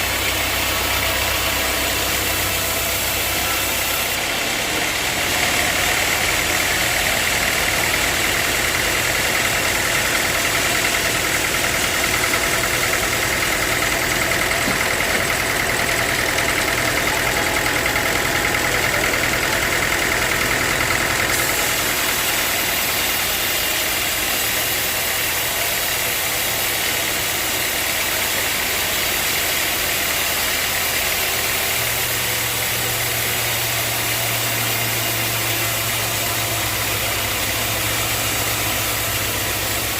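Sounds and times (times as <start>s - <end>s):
high machine whine: 0.0s - 39.9s
sawmill machinery motor hum: 0.0s - 39.9s.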